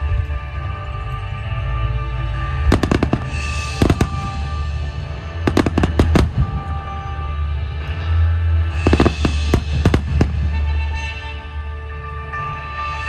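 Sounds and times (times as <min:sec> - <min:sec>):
music with held notes and bass: 0:00.0 - 0:13.0
fireworks bangs: 0:02.6 - 0:07.3, 0:08.8 - 0:11.3.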